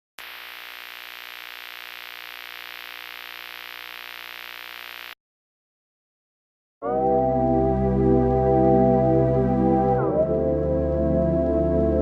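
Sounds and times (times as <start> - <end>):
static hiss: 0.2 - 5.2.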